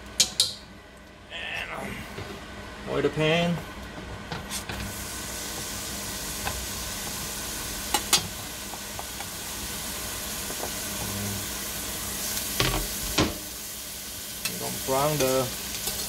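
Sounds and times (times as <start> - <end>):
garlic sizzling in hot oil: 4.5 - 16.0.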